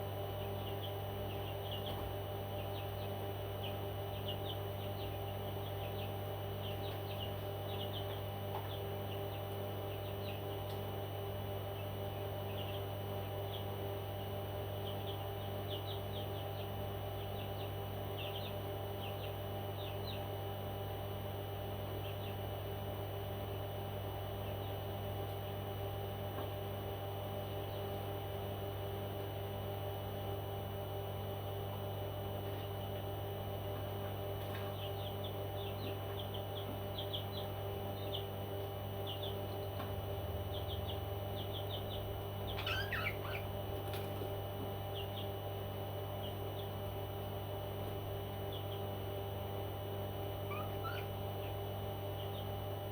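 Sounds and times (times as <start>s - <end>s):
low electrical hum: 0.0s - 52.9s
parrot chirping: 42.5s - 43.5s, 50.5s - 51.1s.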